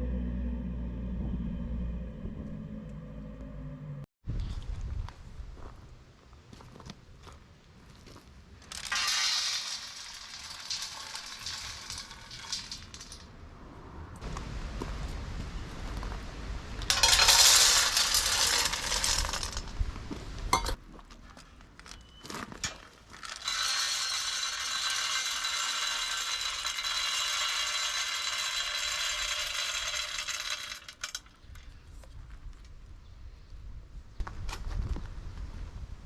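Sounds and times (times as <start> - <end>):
pellets pouring into metal stove: 8.7 - 13.2, 16.9 - 19.7, 23.2 - 31.2.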